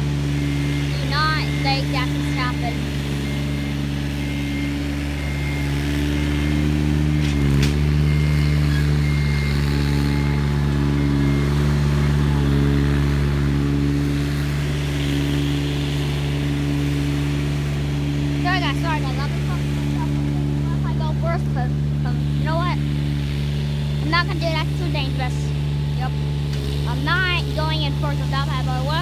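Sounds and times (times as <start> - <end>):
heavy equipment engine running: 0.0 - 29.0
engine knock: 7.3 - 29.0.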